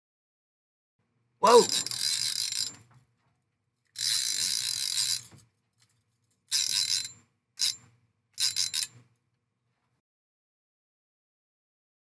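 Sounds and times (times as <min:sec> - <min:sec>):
fishing reel ratcheting: 0:01.4 - 0:02.9, 0:03.9 - 0:05.4, 0:06.5 - 0:09.1.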